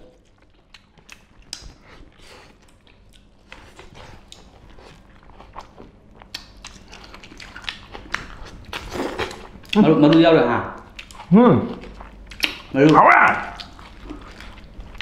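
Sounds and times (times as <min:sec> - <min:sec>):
wet chewing: 0:00.1 - 0:15.0
mouth clicks and smacks: 0:12.3 - 0:14.2.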